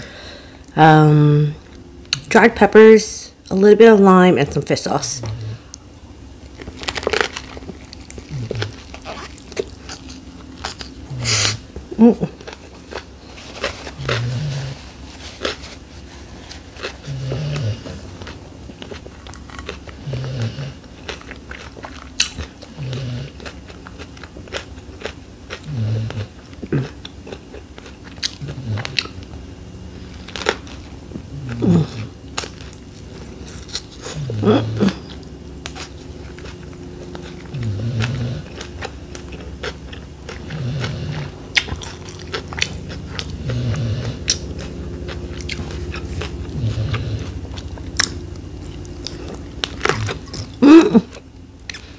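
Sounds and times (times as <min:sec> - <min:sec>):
crunchy bites: 0:06.4 - 0:11.8, 0:12.4 - 0:14.8, 0:30.0 - 0:51.9
biting and chewing: 0:06.4 - 0:51.9.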